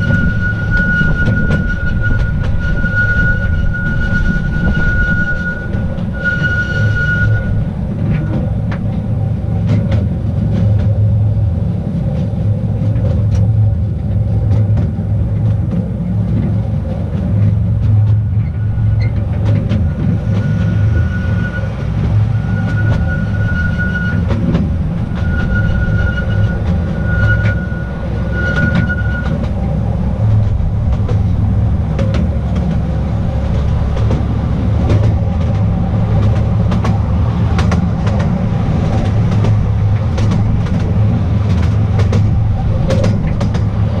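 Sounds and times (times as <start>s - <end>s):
high wheel squeal: 0.0s - 8.6s, 18.3s - 31.9s
train wheels rumbling on track: 0.0s - 44.0s.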